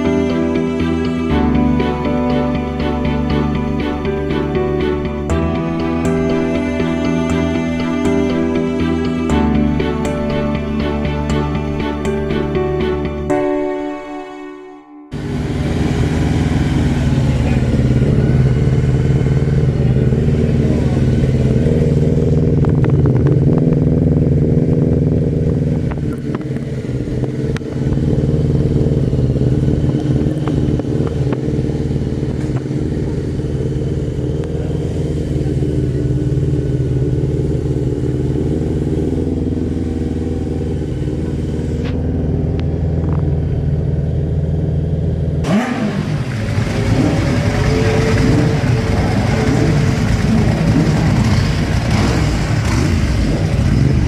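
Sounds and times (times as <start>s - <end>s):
engine revving: 15.1s - 54.0s
motorcycle engine idling: 15.2s - 54.0s.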